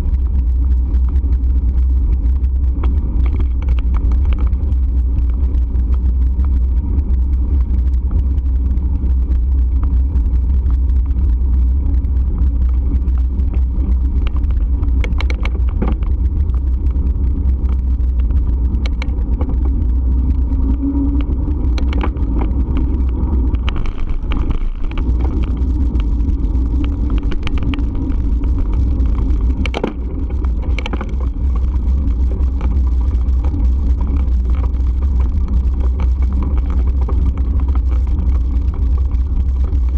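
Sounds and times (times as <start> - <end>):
bike riding rumble: 0.0 - 39.9
wind noise on microphone: 0.0 - 39.9
sharp clicks: 13.0 - 32.9.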